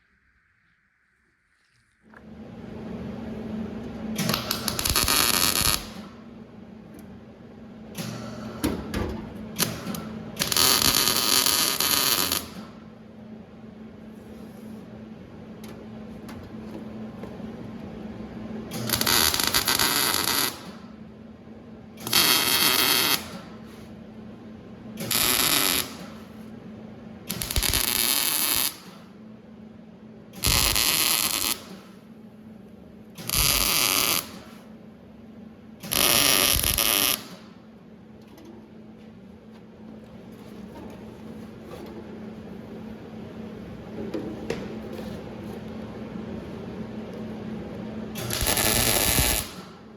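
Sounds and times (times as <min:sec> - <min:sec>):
crackling welding arc: 0:04.3 - 0:06.1, 0:09.8 - 0:12.6, 0:18.8 - 0:20.7, 0:22.0 - 0:23.4, 0:25.0 - 0:26.1, 0:27.3 - 0:28.9, 0:30.4 - 0:31.9, 0:33.2 - 0:34.5, 0:35.9 - 0:37.4, 0:48.2 - 0:49.8
steady low hum: 0:31.6 - 0:49.9.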